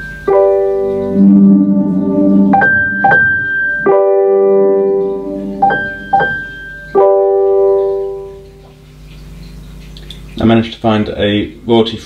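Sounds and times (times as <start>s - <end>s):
smart speaker start-up chimes: 0.0s - 8.3s.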